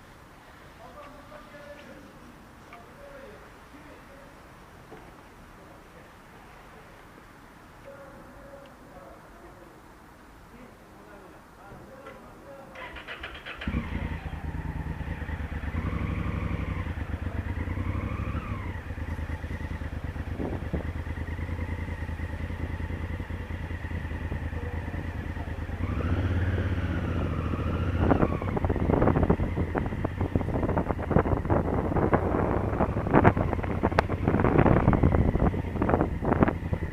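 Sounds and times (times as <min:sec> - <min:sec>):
motorcycle engine running: 0:13.6 - 0:36.9
wind buffeting microphone: 0:14.4 - 0:36.9.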